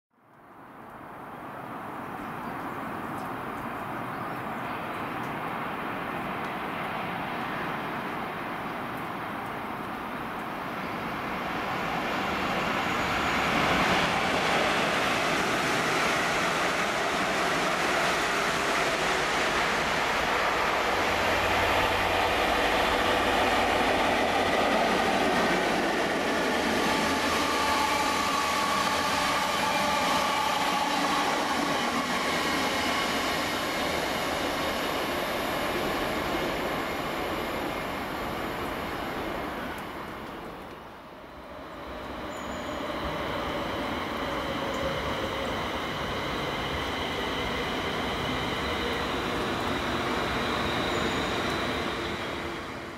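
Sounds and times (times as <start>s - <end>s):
diesel locomotive engine drone: 10.7s - 52.9s
train wheels whining on rails: 10.7s - 52.9s.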